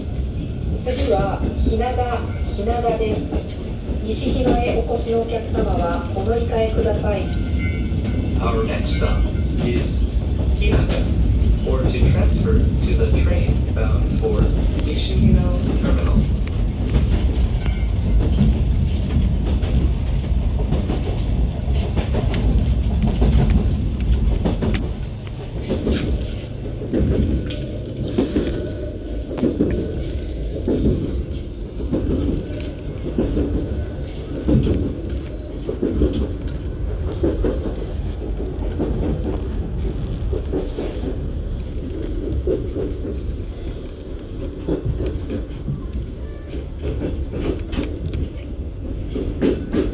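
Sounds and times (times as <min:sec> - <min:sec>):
rail joint clicks: 0:00.0 - 0:49.9
train wheels rumbling: 0:00.0 - 0:49.9.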